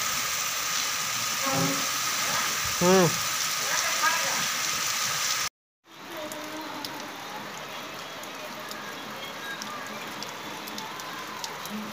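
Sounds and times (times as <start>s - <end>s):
steady rain falling: 0.0s - 11.9s
sharp ticks of raindrops: 5.9s - 11.9s.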